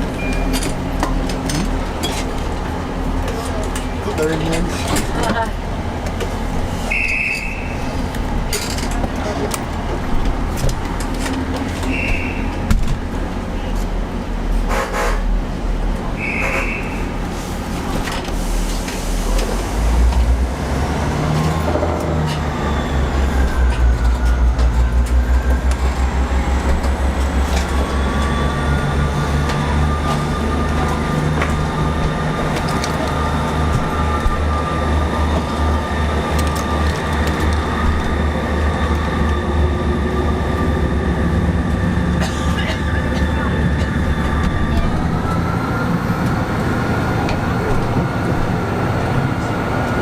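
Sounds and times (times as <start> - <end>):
train low drone: 0.0 - 50.0.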